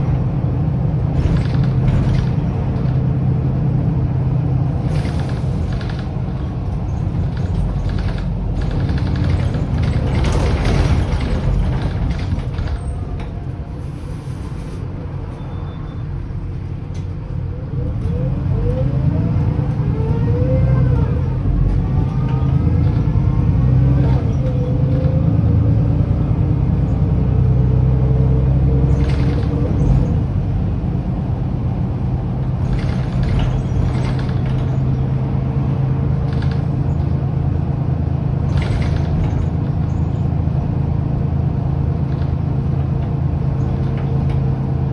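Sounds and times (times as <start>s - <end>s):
bus diesel engine drone: 0.0s - 44.9s.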